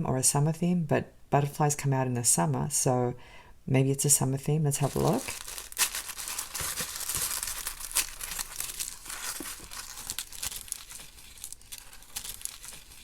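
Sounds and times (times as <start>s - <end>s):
tissue paper rustling: 4.7s - 13.0s.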